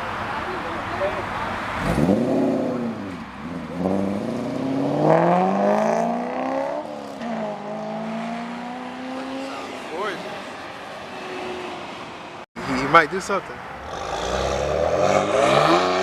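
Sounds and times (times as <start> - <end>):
car engine revving and accelerating: 1.7 - 10.2, 13.8 - 16.0.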